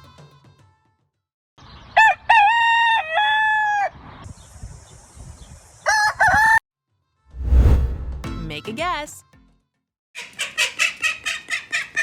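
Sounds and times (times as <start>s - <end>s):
rooster crowing: 2.3s - 3.9s, 5.9s - 6.6s.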